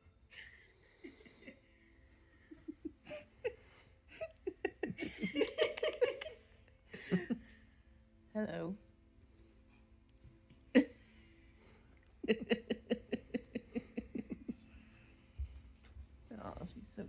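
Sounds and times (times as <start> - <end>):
person giggling: 0.4 - 1.6, 2.4 - 7.5, 10.8 - 11.2, 12.2 - 14.8.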